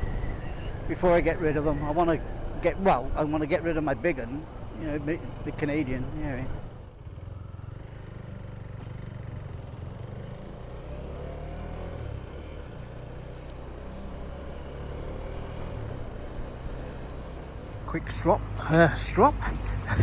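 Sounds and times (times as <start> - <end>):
motorcycle engine running: 3.2 - 10.9.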